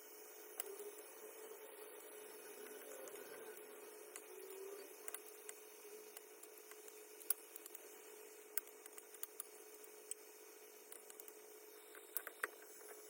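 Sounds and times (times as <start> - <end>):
faint steady hum: 0.0 - 13.0
small objects clicking and tapping: 4.1 - 13.0.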